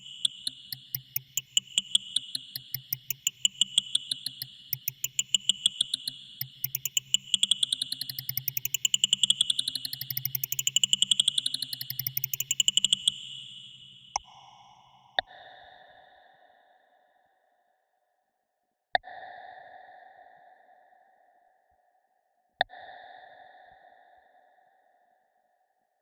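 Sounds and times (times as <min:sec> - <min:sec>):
sharp electronic clicks: 0:00.0 - 0:14.2.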